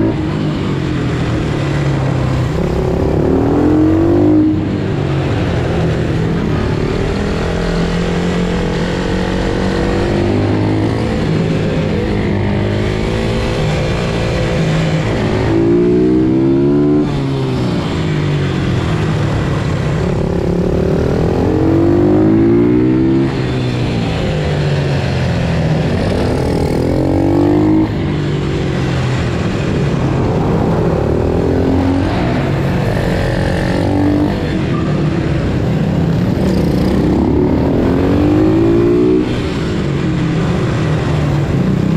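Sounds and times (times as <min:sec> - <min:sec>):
pit bike engine revving: 0:25.6 - 0:39.6.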